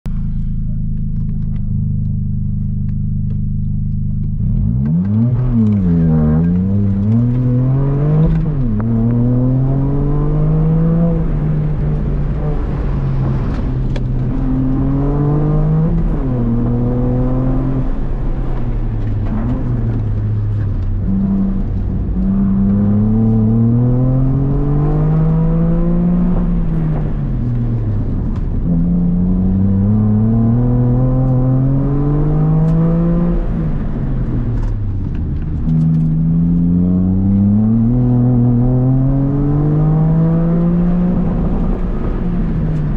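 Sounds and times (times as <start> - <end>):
car engine revving from cabin: 4.2 - 42.9.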